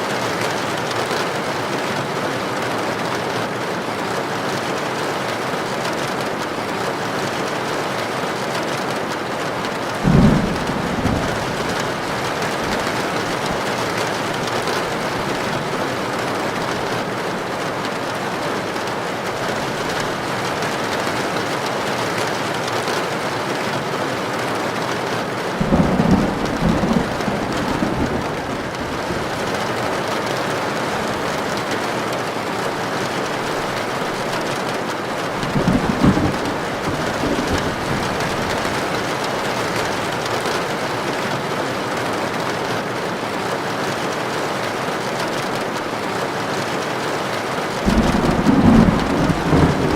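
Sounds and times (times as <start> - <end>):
rain on a tin roof: 0.0 - 49.9
low thunder rumbles: 10.0 - 16.9, 25.6 - 29.5, 35.4 - 40.2, 47.8 - 49.9.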